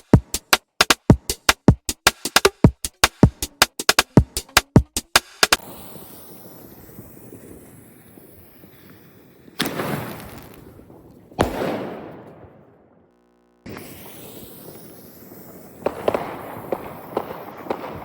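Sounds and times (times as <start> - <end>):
sharp cracks: 6.6 - 18.0
firework bangs with rumbling echo: 9.6 - 13.0, 13.7 - 18.0.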